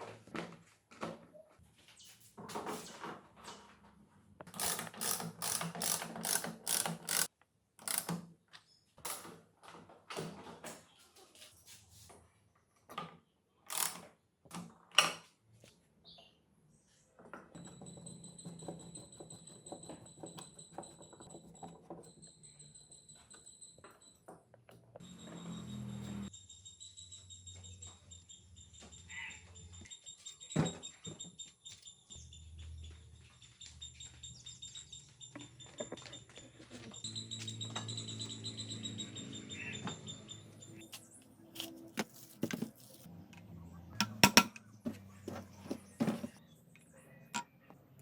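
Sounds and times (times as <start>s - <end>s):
rapid clicking of tools: 4.5s - 8.2s, 13.7s - 14.1s
sharp knocks on metal: 44.0s - 44.6s.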